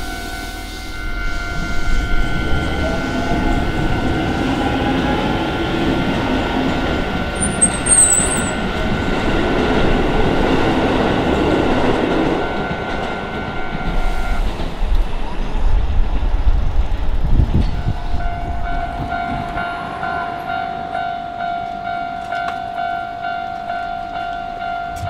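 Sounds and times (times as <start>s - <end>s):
train wheels rumbling on rail: 0.0s - 25.0s
crossing alarm ringing: 1.0s - 9.0s
wheel squeal: 7.4s - 8.6s.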